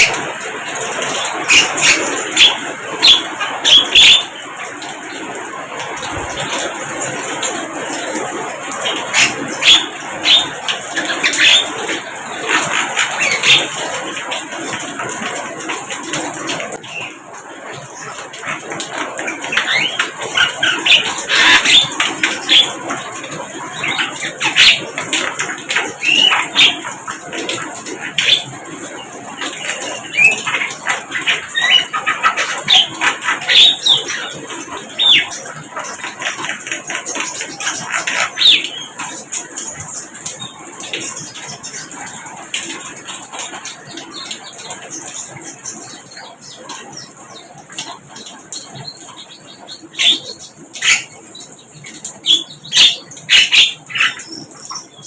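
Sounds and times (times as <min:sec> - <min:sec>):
bird chirping and whistling: 0:01.5 - 0:04.4, 0:08.8 - 0:11.8, 0:19.5 - 0:22.8, 0:26.0 - 0:26.9, 0:29.6 - 0:35.4, 0:48.8 - 0:51.1, 0:52.2 - 0:55.0.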